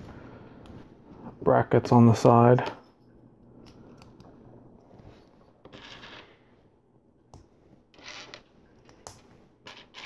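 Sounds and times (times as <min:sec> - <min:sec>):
rustle of hands and pieces: 0:00.0 - 0:01.4, 0:02.6 - 0:10.0.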